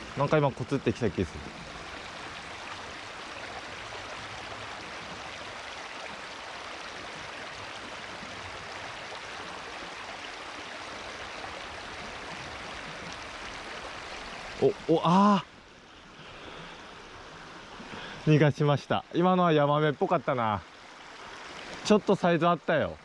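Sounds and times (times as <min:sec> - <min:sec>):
stream water rushing over rocks: 0:00.0 - 0:15.2.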